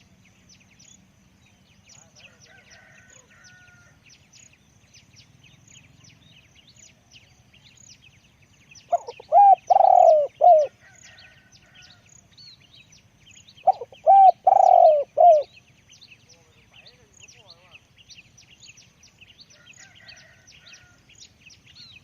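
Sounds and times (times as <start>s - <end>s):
small birds chirping: 0.0s - 22.0s
dove cooing: 8.9s - 10.8s, 13.6s - 15.5s.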